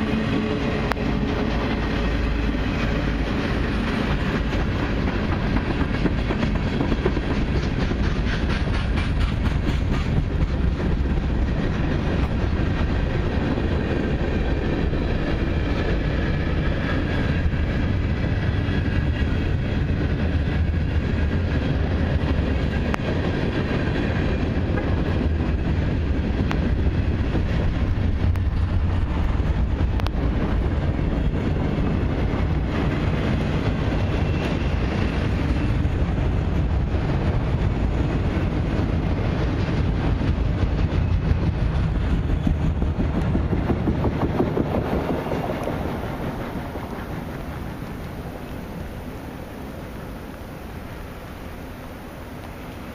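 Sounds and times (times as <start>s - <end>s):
freight train wheels rumbling: 0.0s - 52.9s.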